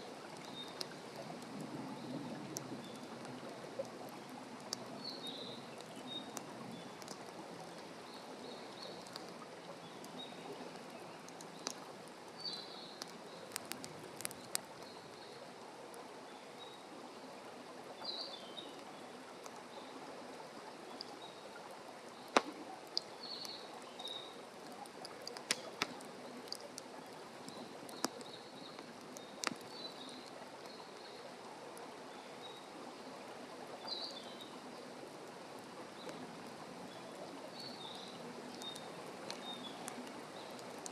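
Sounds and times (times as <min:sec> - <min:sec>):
wood fire crackling and popping: 0:00.2 - 0:08.0, 0:08.6 - 0:12.3, 0:13.0 - 0:15.3, 0:22.3 - 0:30.8, 0:37.9 - 0:40.9.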